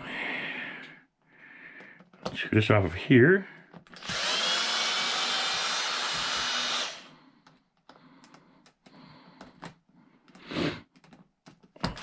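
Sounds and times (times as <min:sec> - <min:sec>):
electric drill spinning: 0:03.9 - 0:07.1.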